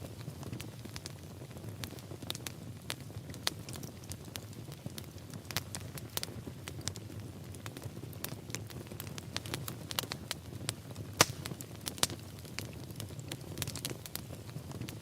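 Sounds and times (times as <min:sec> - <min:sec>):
fire crackling: 0:00.0 - 0:15.0
fire pops and snaps: 0:00.0 - 0:15.0
low rumble of flames: 0:00.0 - 0:15.0.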